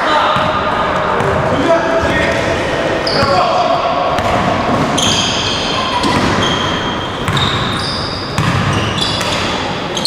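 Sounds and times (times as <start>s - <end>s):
sneakers squeaking on court: 3.0s - 3.4s, 4.1s - 10.0s
basketball bouncing: 4.1s - 9.6s.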